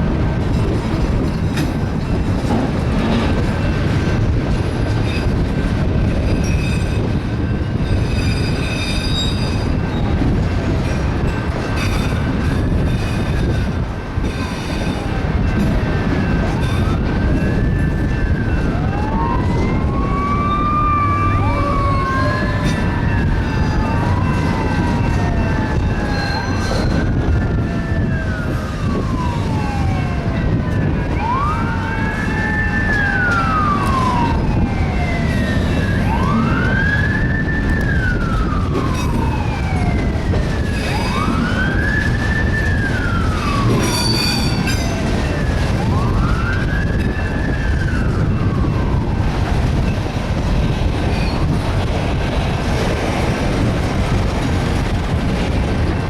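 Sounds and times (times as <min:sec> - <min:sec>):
emergency vehicle siren wailing: 0:00.0 - 0:56.0
freight train rumbling past: 0:00.0 - 0:56.0
second siren: 0:14.2 - 0:50.1.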